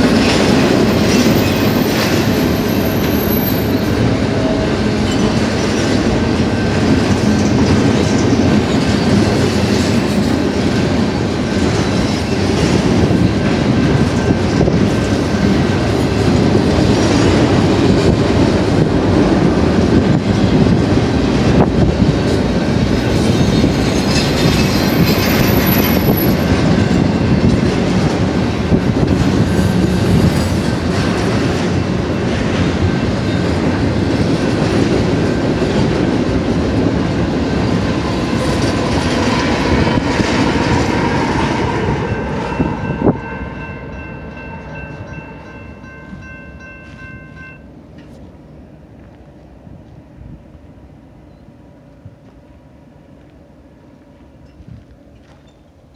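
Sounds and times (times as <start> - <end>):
train wheels rumbling on rail: 0.0 - 55.9
high-pitched squeal: 0.2 - 9.1.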